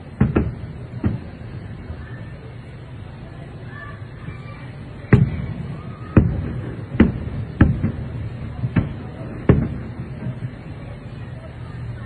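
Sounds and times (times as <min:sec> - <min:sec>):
firework shells booming: 0:00.0 - 0:02.0, 0:05.1 - 0:11.3.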